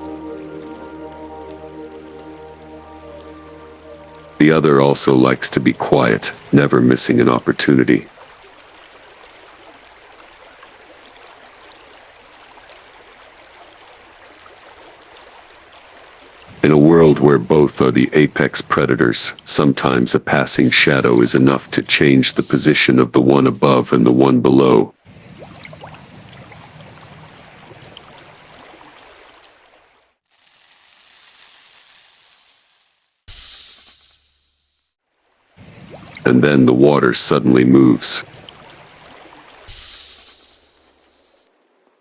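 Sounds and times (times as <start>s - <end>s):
water flowing hiss: 19.0s - 24.8s, 30.2s - 34.9s, 35.6s - 42.0s.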